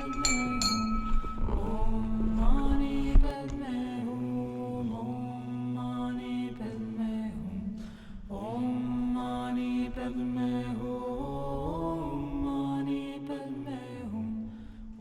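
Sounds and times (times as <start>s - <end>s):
person chanting a melody: 0.0s - 7.6s.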